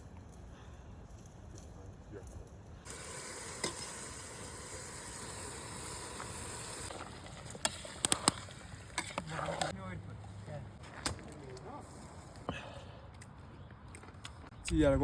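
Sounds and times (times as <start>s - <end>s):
food sizzling in a pot: 2.9s - 6.9s.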